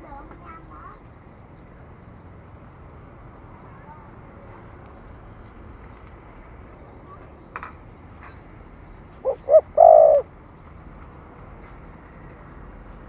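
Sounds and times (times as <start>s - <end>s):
dove cooing: 9.2s - 10.3s.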